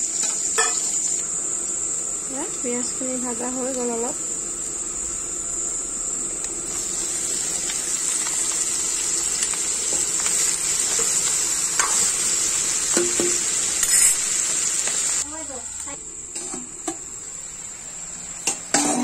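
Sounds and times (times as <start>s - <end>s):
meat sizzling in hot oil: 0.0s - 19.0s
spoon scraping a pan: 0.2s - 1.0s, 12.9s - 15.0s.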